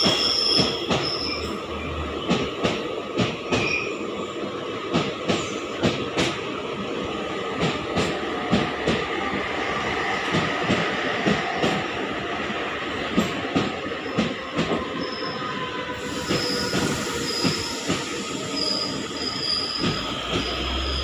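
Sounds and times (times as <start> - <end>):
high-pitched brake squeals: 0.0 - 1.6, 15.0 - 21.0
train coaches rumbling past: 0.0 - 21.0.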